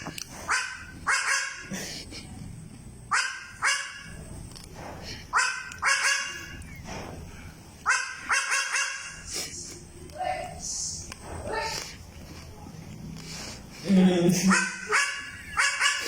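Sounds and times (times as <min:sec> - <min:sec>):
baby goat barking: 0:00.5 - 0:01.7, 0:03.1 - 0:04.1, 0:05.3 - 0:06.4, 0:07.8 - 0:09.2, 0:14.5 - 0:16.0.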